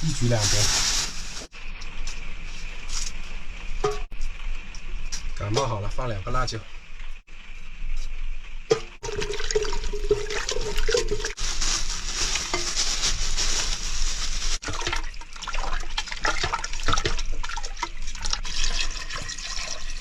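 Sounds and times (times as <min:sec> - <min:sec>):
water splashing into a pot: 0:09.0 - 0:11.4, 0:14.5 - 0:20.0.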